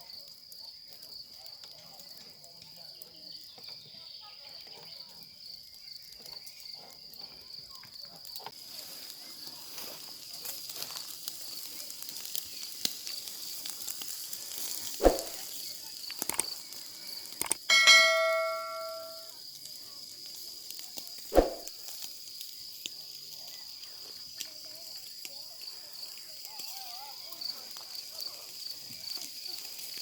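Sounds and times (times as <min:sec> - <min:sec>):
insects chirring: 0:00.0 - 0:30.0
sharp thump: 0:15.0 - 0:15.4, 0:21.4 - 0:21.7
metal object struck ringing: 0:17.7 - 0:19.3.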